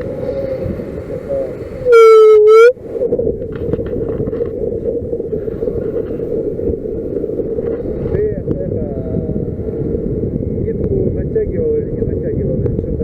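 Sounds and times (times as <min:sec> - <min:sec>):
wind noise on microphone: 0:00.0 - 0:13.0
short horn blast: 0:01.9 - 0:02.8.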